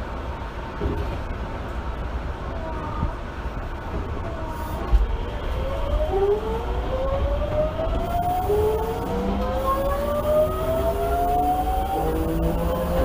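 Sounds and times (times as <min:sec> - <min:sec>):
wheel and track rumble: 0:00.0 - 0:13.0
traction motor whine rising: 0:05.9 - 0:13.0.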